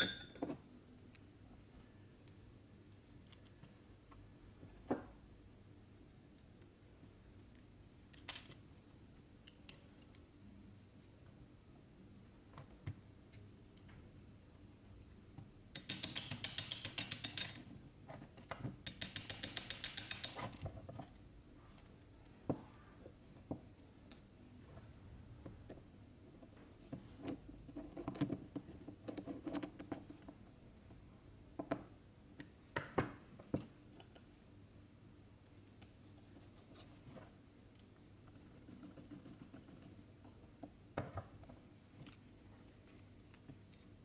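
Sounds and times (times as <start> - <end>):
small metal parts clicking: 15.8 - 17.7, 18.8 - 20.7.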